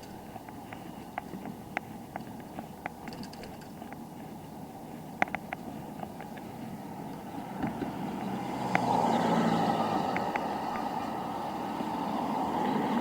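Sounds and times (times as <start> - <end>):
sharp clicks: 0.0 - 4.1, 5.2 - 6.5
car passing: 3.7 - 13.0.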